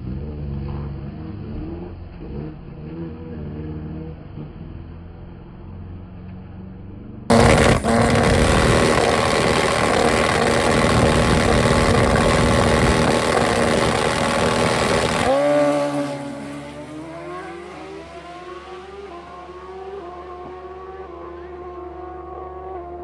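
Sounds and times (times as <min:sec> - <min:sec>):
motorcycle engine revving: 0:07.3 - 0:23.0.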